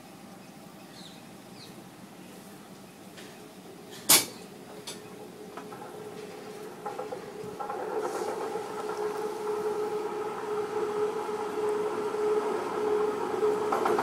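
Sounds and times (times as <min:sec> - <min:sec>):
train wheels rumbling on rail: 0:03.0 - 0:14.0.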